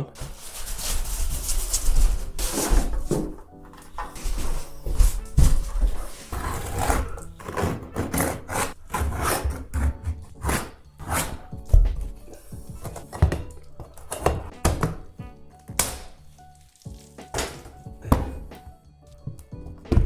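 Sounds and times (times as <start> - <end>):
background music: 0.0 - 20.0
hand tools knocking and scraping wood: 0.2 - 16.1, 17.2 - 18.7.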